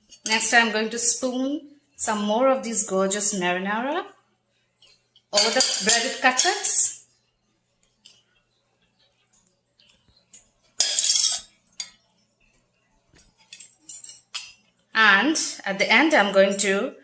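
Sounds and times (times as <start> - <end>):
spoon scraping casserole dish: 9.8 - 12.0.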